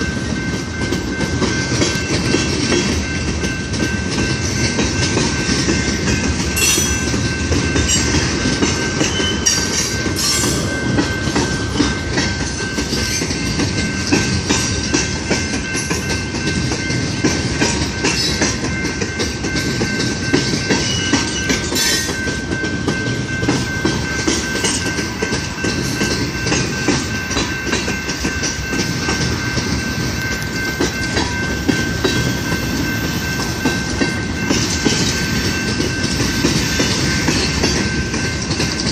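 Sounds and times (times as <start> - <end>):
freight train rumbling past: 0.0 - 38.9
wheels clacking on rails: 0.0 - 38.9.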